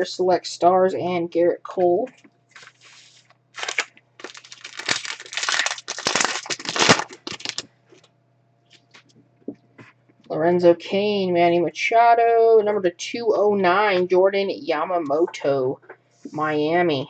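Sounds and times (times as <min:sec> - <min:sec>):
plastic wrapper crinkling and tearing: 0:02.5 - 0:08.1.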